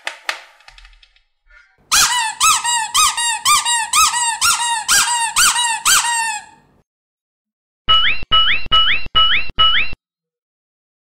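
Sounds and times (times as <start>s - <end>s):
dog squeaky toy squeaking: 1.9s - 6.6s.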